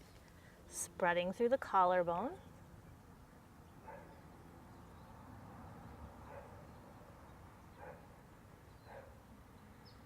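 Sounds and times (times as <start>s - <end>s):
dog barking faintly: 3.8s - 4.2s.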